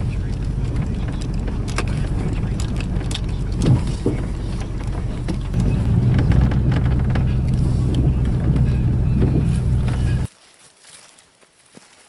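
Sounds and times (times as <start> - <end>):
clicks and rattles: 0.0 - 10.3
truck engine and road hum: 0.0 - 10.3.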